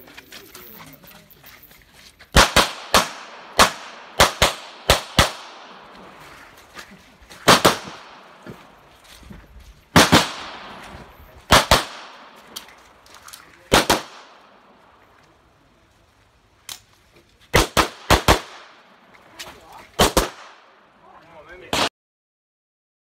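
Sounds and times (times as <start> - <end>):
pistol shots: 2.4 - 5.8, 7.4 - 8.4, 9.9 - 10.8, 11.5 - 12.7, 13.7 - 14.5, 17.5 - 18.8, 20.0 - 20.7.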